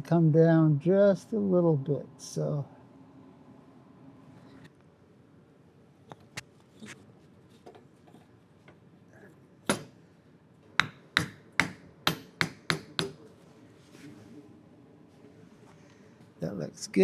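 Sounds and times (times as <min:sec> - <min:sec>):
hammer striking metal part: 0:09.7 - 0:09.9, 0:10.8 - 0:13.2.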